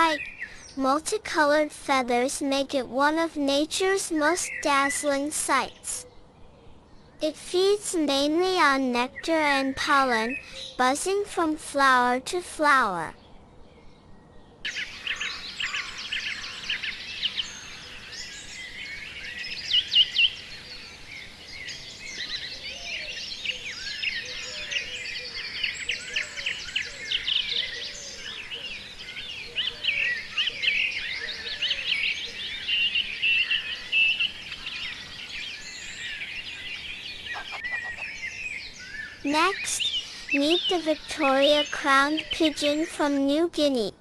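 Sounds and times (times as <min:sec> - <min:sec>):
birds chirping chorus: 0:00.0 - 0:01.7, 0:02.3 - 0:12.1, 0:13.0 - 0:43.4
lower bird calls: 0:14.4 - 0:42.8.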